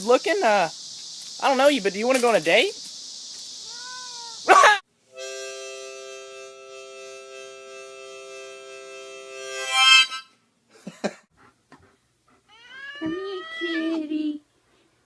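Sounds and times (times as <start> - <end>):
reedy held chord: 5.2 - 10.2.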